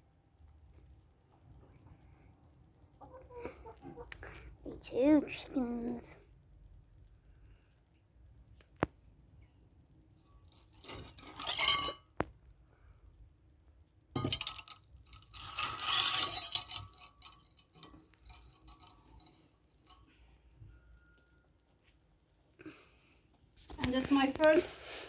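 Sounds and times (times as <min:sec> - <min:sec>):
rummaging with rustling and scraping: 0:10.1 - 0:12.2, 0:14.2 - 0:22.2, 0:23.3 - 0:25.0
light clinks: 0:14.2 - 0:20.2.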